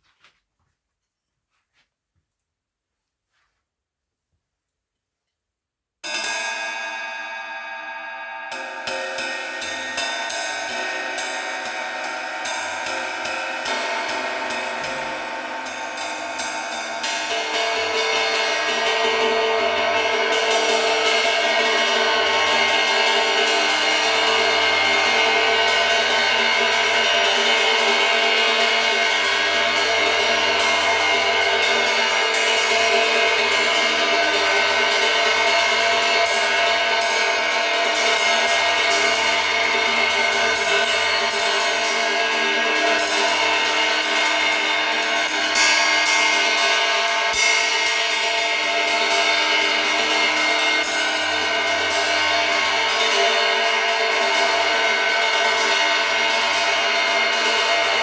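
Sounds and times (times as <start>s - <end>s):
steady pink noise hiss: 8.6s - 19.5s.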